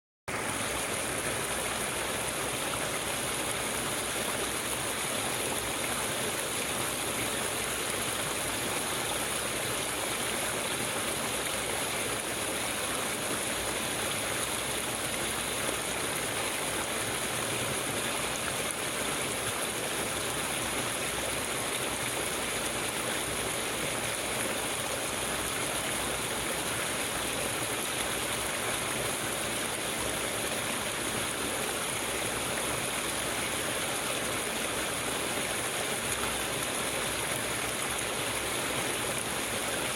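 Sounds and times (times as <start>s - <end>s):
flowing water rushing: 0.3s - 39.9s.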